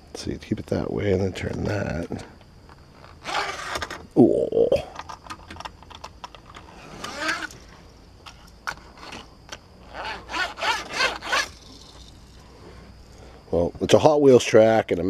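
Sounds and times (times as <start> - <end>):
plastic scraping on plastic: 1.4 - 4.1, 5.0 - 12.9.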